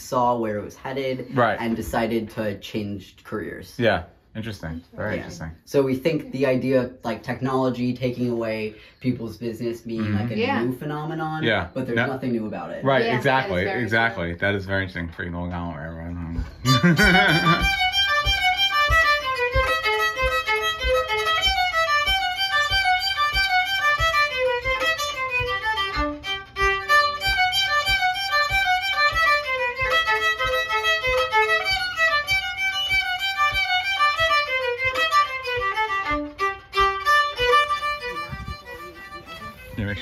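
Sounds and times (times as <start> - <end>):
lively fiddle music: 0.0 - 2.9, 4.8 - 40.0
steady low beat: 11.5 - 40.0.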